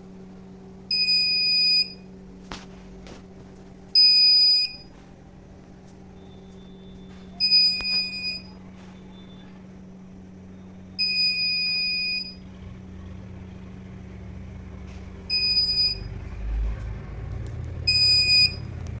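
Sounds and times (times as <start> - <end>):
low hum: 0.0 - 19.0
doorbell buzzer beeping: 6.2 - 9.4, 11.0 - 12.4, 15.3 - 16.1, 17.9 - 18.6.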